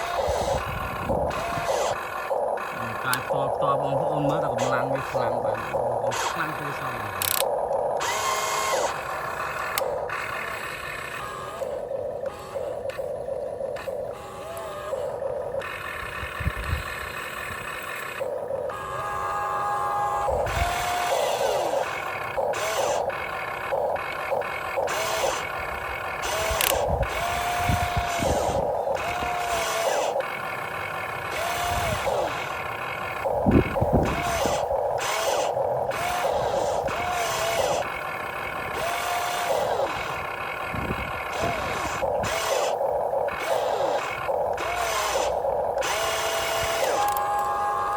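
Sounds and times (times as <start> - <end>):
electric motors whining: 0.0 - 47.9.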